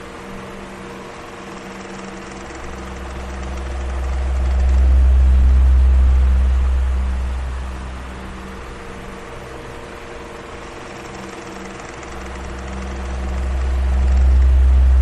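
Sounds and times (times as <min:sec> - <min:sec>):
electric fan blowing air: 0:00.0 - 0:15.0
faint motor hum: 0:00.0 - 0:15.0
low rumble: 0:02.9 - 0:09.1, 0:12.4 - 0:15.0.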